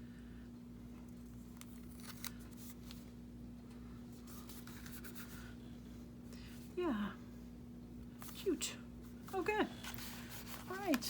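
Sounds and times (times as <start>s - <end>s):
low electrical hum: 0.0s - 11.0s
paper and tape rustling: 1.5s - 3.1s, 4.2s - 5.5s, 9.8s - 11.0s.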